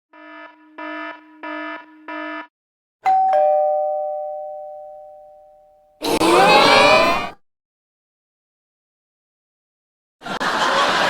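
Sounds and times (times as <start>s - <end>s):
two-note ding-dong chime: 3.1s - 6.0s.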